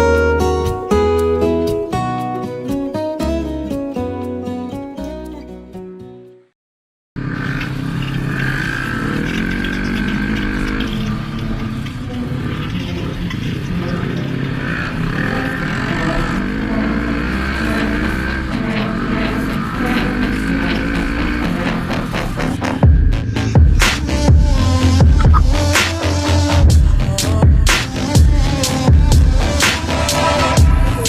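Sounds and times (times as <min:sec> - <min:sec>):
quad bike engine revving: 0:07.2 - 0:31.0.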